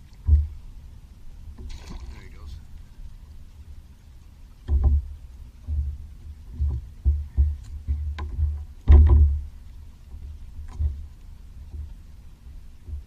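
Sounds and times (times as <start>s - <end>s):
thumps against kayak hull: 4.6s - 12.0s.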